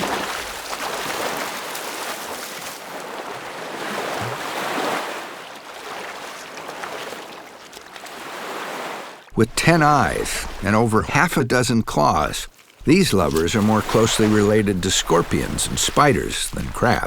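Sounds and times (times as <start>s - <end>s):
surf washing onto beach: 0.0s - 7.4s, 12.2s - 17.0s.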